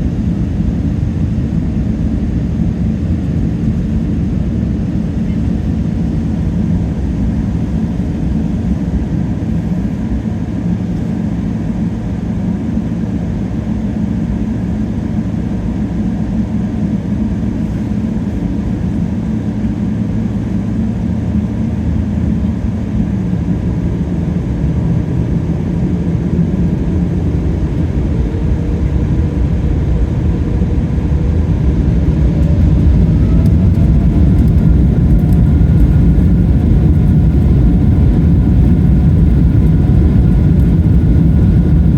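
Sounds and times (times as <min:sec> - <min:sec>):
jet engines rumbling in cabin: 0:00.0 - 0:41.9
engine whine rising in pitch: 0:20.6 - 0:41.9.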